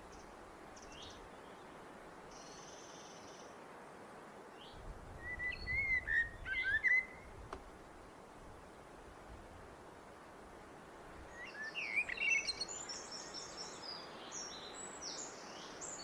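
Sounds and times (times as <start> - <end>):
blackbird singing: 5.2 - 7.3, 11.4 - 16.0.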